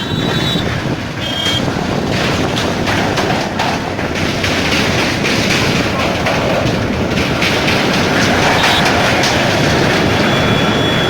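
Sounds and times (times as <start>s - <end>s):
vehicles rumbling on a bridge: 0.0s - 11.0s.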